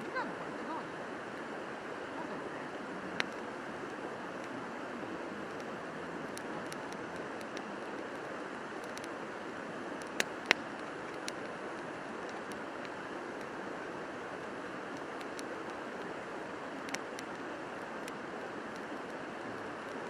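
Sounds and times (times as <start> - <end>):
river rushing: 0.0 - 20.0
faint ticks: 3.0 - 20.0
sharp clicks: 6.3 - 9.1, 10.0 - 11.6.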